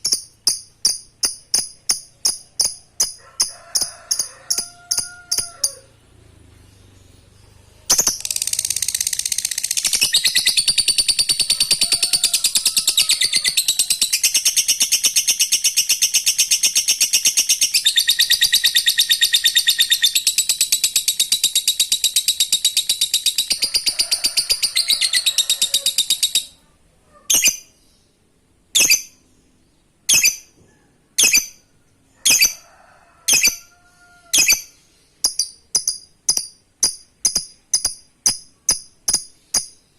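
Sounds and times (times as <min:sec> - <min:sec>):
sharp bird chirps: 0:07.4 - 0:25.2, 0:28.8 - 0:29.3, 0:30.1 - 0:30.6
bird chattering trill: 0:07.9 - 0:26.6.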